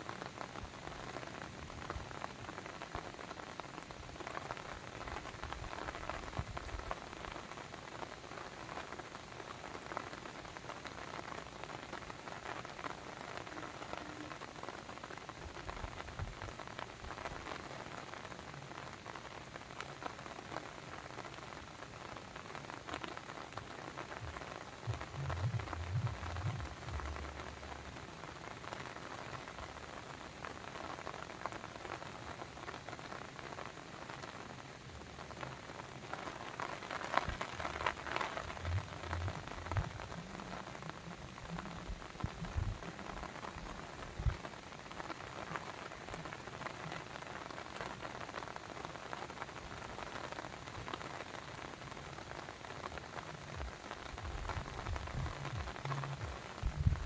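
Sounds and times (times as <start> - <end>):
rain pattering: 0.0 - 57.0
short low rumble: 24.9 - 27.4, 54.3 - 57.0.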